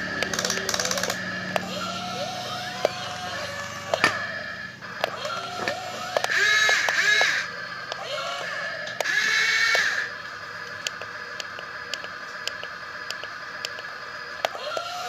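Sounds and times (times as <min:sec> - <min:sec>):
sharp clicks: 0:00.0 - 0:01.7, 0:04.9 - 0:08.1, 0:08.8 - 0:14.9
small motors whining: 0:00.0 - 0:15.0.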